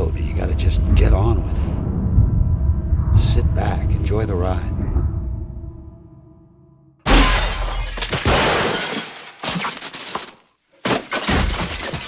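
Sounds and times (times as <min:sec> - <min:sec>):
heavy crash: 0:07.1 - 0:08.9
debris breaking and shattering: 0:07.1 - 0:10.2.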